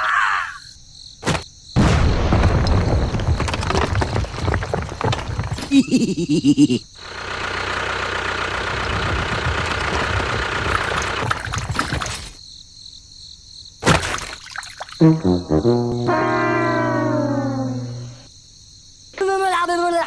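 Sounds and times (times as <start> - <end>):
horn-like comic sound effect: 15.0 - 18.3.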